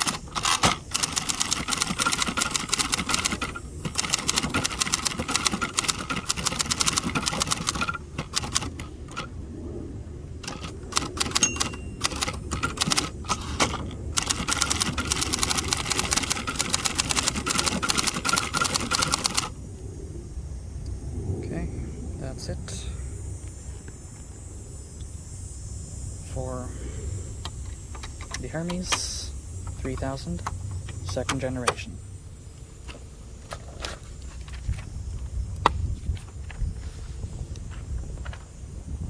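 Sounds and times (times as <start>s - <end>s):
manual typewriter keystrokes: 0.0s - 9.3s, 10.4s - 19.6s, 27.5s - 31.9s.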